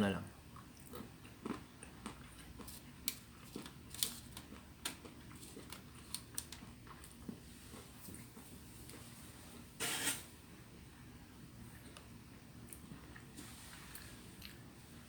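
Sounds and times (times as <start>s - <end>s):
faint room hum: 0.0s - 15.0s
chewing and mouth noises: 0.5s - 9.1s, 11.7s - 14.7s.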